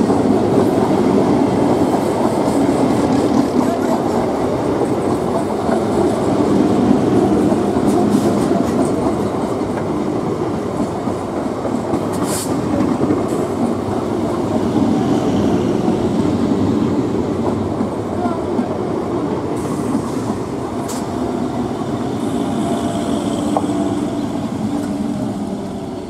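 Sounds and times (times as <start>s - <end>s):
train wheels on rails: 0.0s - 26.0s.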